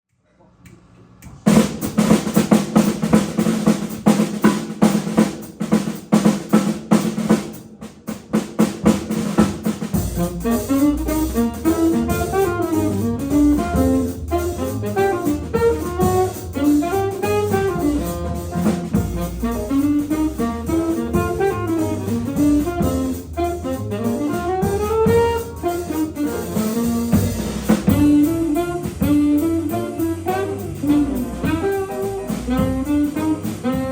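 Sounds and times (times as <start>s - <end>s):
drum kit rolls and hits: 1.4s - 33.9s
jazz band playing fast melody: 1.5s - 33.9s.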